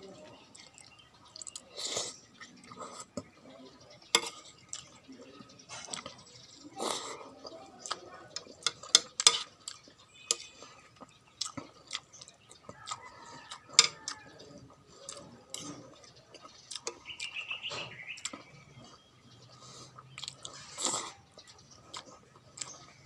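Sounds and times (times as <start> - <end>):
spoon clinking against a bowl: 13.6 - 14.2.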